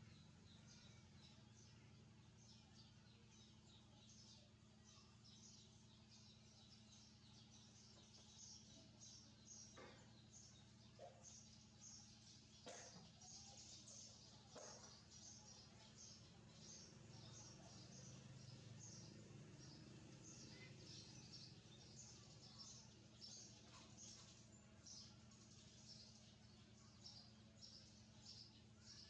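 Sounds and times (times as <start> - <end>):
young birds chirping: 0.0 - 29.0.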